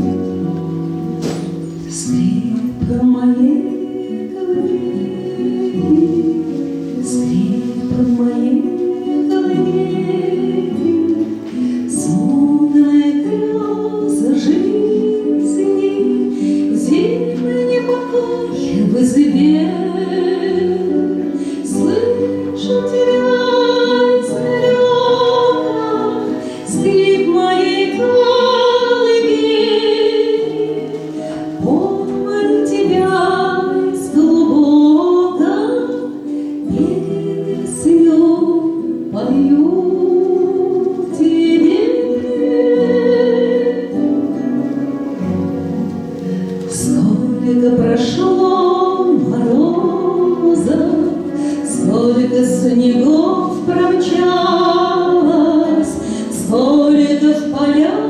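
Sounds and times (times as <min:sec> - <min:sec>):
musical accompaniment: 0:00.0 - 0:58.0
woman singing a slow song: 0:01.6 - 0:44.6, 0:46.6 - 0:58.0.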